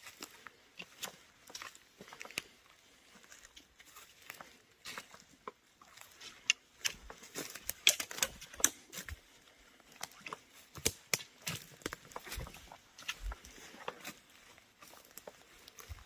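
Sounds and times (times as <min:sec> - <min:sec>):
footsteps on dry forest floor: 0:00.0 - 0:16.0
twigs crackling underfoot: 0:00.0 - 0:16.0.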